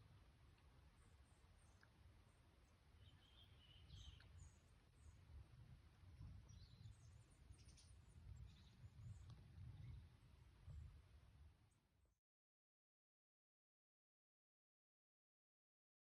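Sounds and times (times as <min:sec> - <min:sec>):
distant bird chirps: 0:02.6 - 0:05.2.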